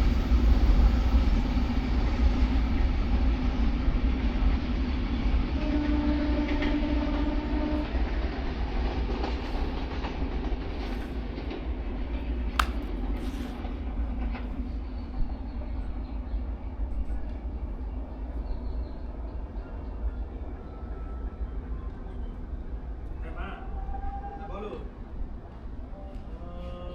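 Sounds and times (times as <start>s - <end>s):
train wagons rumbling on track: 0.0s - 26.9s
sharp click: 12.6s - 12.8s.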